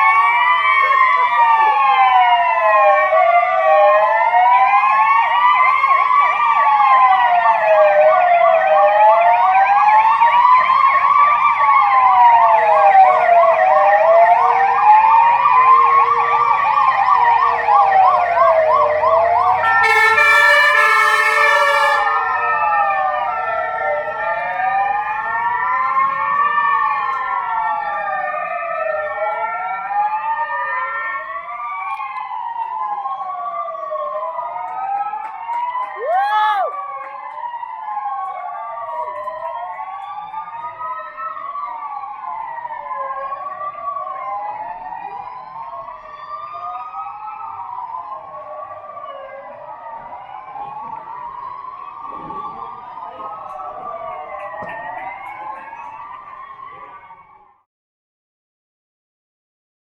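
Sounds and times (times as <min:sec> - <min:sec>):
emergency sirens wailing: 0:00.0 - 0:57.6
loud horn blast: 0:19.6 - 0:22.4.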